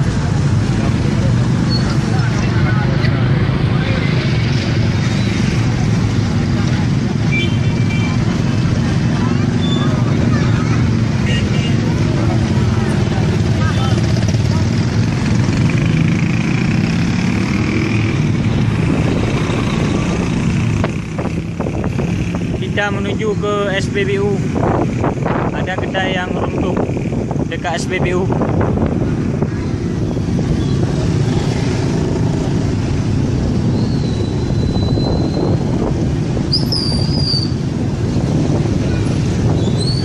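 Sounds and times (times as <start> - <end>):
vehicle engine and road noise: 0.0 - 40.0
wind on microphone: 17.0 - 23.1, 23.8 - 40.0.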